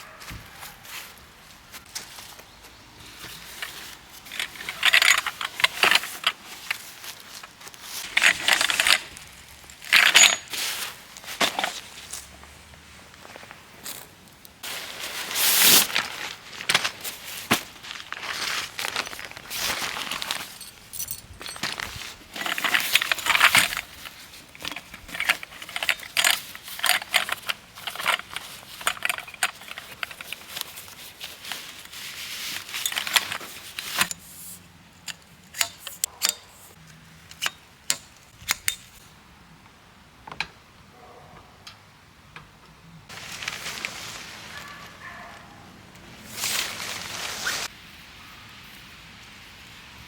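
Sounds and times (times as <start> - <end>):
gear rustling and clattering: 3.0 - 12.4, 13.2 - 39.0
sharp clicks and clinks: 9.9 - 10.6, 35.0 - 39.0.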